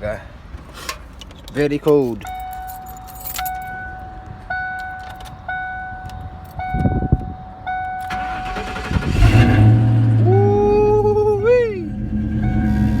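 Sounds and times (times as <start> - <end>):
car warning chime dinging: 1.5 - 8.9, 12.3 - 13.0
car engine cranking and starting: 7.8 - 13.0.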